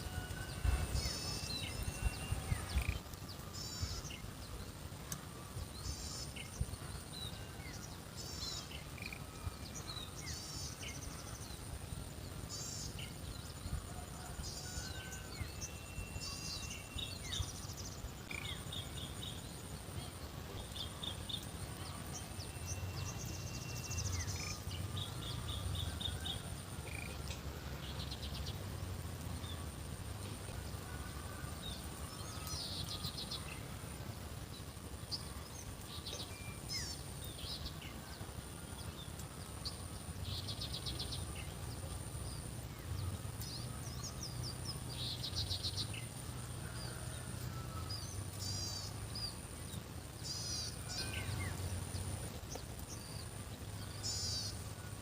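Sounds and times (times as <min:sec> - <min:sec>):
birds chirping and trilling: 0:00.0 - 0:11.6.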